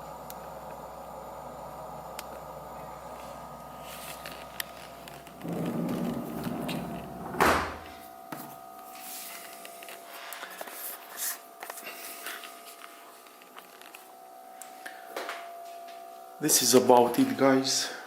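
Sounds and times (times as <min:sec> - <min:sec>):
faint steady hum: 0:00.0 - 0:18.0
fridge door thud: 0:05.4 - 0:08.0
small clicks and rustles: 0:11.6 - 0:14.8.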